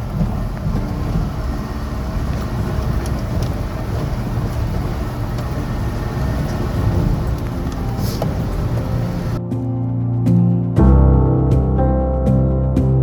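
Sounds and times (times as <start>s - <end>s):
vehicle engine and road rumble: 0.0s - 9.5s.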